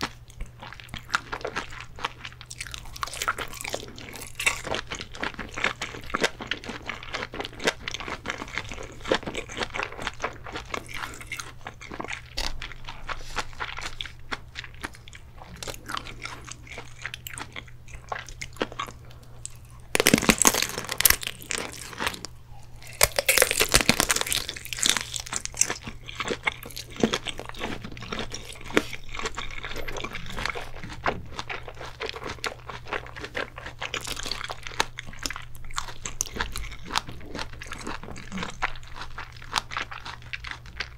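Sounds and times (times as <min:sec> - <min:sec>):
chewing sausage: 0:00.0 - 0:40.9
loud crunching bites: 0:15.6 - 0:30.7.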